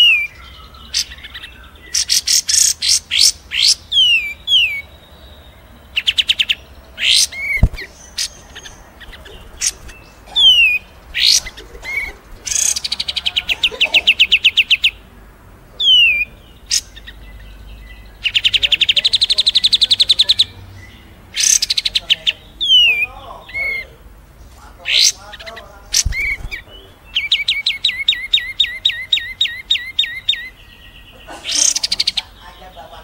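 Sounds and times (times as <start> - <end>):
songbird high chips: 6.0 - 14.9, 24.5 - 30.5
fast even bird trill: 6.0 - 15.0, 24.8 - 32.3.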